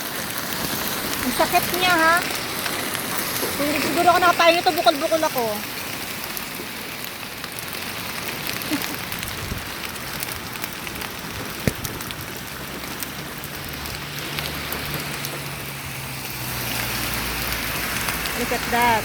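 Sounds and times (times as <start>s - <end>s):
hail and rain falling: 0.0s - 19.0s
loud crack: 8.2s - 15.3s.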